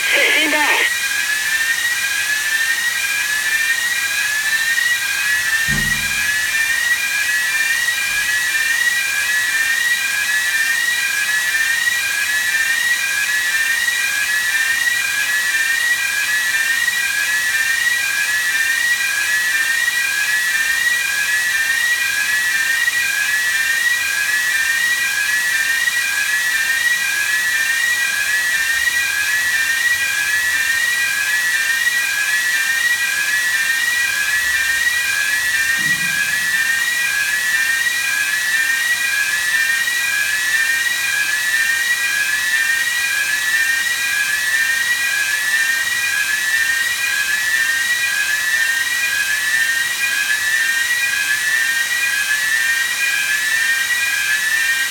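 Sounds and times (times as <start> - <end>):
rising whistling tone: 32.0 - 39.9.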